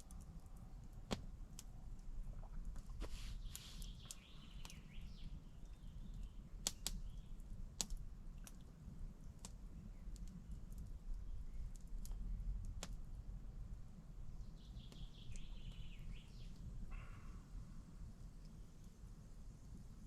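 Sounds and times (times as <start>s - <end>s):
low steady rumble: 0.0s - 3.7s
sharp clicks and snaps: 5.6s - 7.1s, 7.8s - 8.7s, 9.3s - 13.0s.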